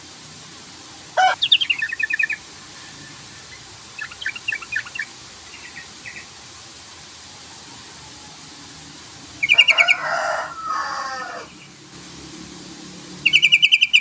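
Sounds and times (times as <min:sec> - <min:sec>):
bulbul calling: 0:01.2 - 0:02.4, 0:04.0 - 0:06.2, 0:13.2 - 0:14.0.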